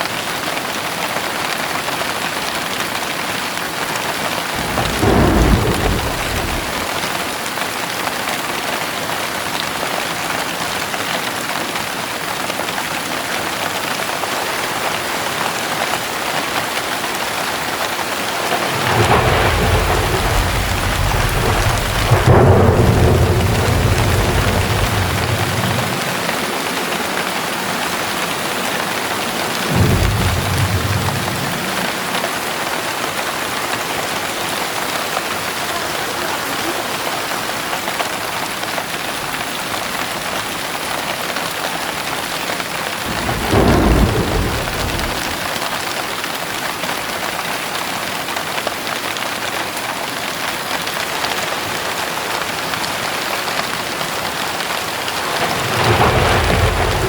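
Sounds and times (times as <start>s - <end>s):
heavy rain pouring: 0.0s - 57.0s
thunder rolling: 4.0s - 7.6s, 17.7s - 35.8s, 42.9s - 45.8s, 54.4s - 57.0s.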